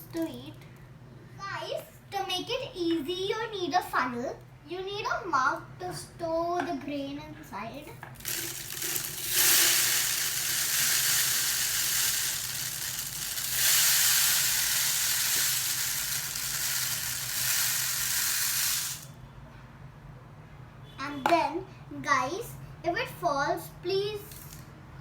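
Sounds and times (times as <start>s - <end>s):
grains pouring into plastic bottle: 8.2s - 19.1s.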